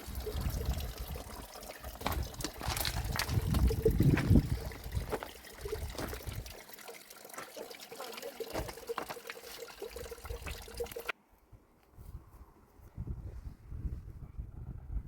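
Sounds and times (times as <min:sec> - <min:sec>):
water trickling: 0:00.0 - 0:11.1.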